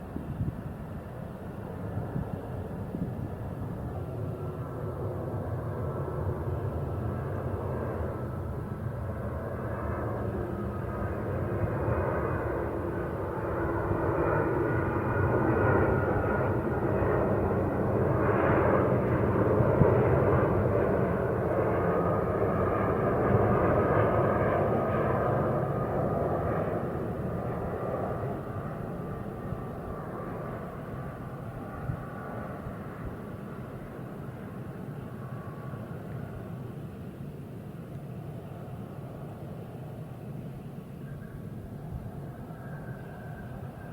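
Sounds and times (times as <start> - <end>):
faint jet whine: 0.0 - 43.9
jet engines passing: 0.0 - 43.9.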